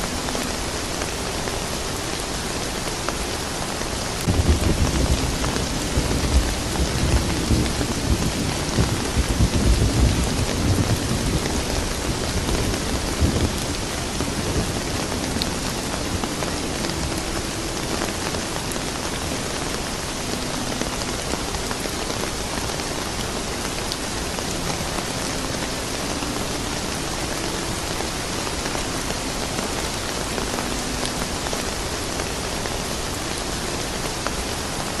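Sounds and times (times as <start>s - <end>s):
steady rain falling: 0.0s - 35.0s
thunder rumble: 4.2s - 22.7s.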